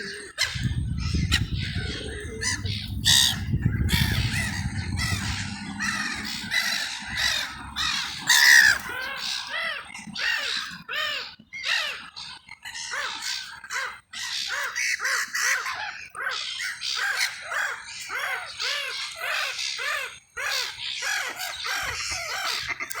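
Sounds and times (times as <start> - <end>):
crows cawing: 0.0 - 12.0.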